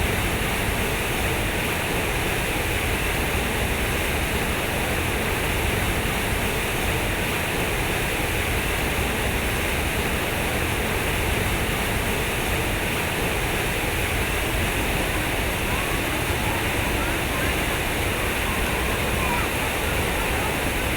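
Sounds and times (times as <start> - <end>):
water flowing: 9.4 - 20.9.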